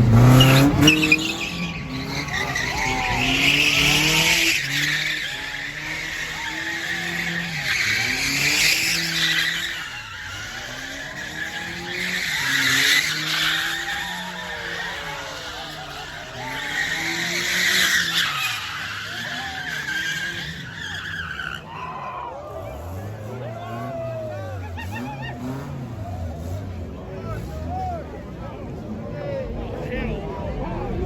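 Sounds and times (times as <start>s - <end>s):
car engine revving: 0.0s - 21.8s, 22.4s - 31.0s
tyres squealing: 0.0s - 23.1s.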